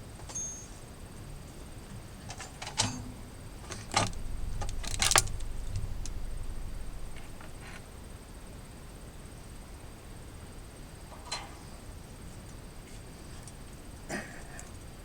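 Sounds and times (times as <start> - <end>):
low rumble: 3.1 - 8.6.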